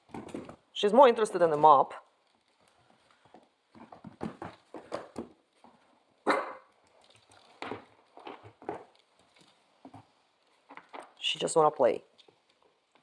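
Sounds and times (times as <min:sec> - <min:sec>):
puppy barking: 0:06.2 - 0:06.7.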